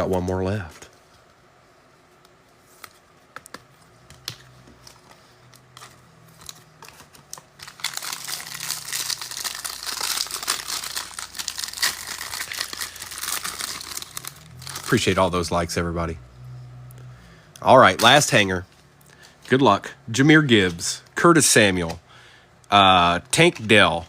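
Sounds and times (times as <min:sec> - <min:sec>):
plastic wrap tearing and crinkling: 0:05.8 - 0:15.4.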